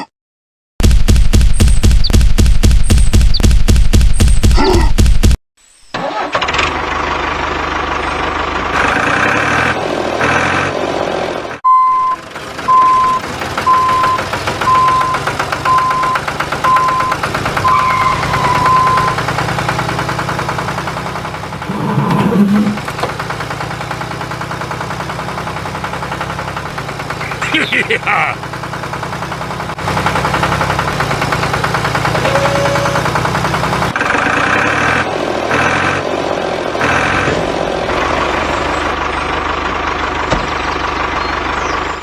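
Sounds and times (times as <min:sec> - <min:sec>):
mini tractor engine running: 0:12.2 - 0:34.8.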